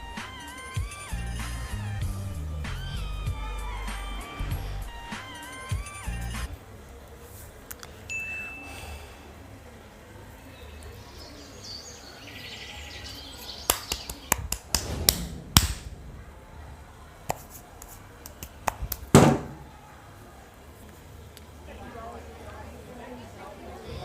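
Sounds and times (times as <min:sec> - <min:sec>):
loud knock: 0:14.4 - 0:16.0, 0:19.0 - 0:19.7.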